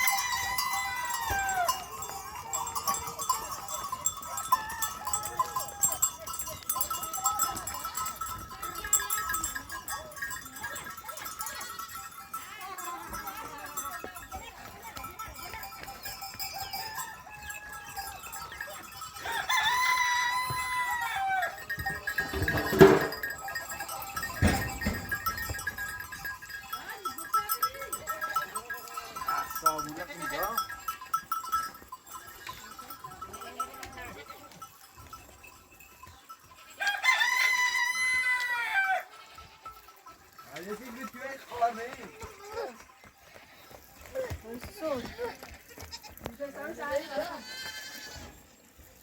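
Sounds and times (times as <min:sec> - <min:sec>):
rooster crowing: 0:00.0 - 0:01.8, 0:19.2 - 0:21.6, 0:36.8 - 0:39.2.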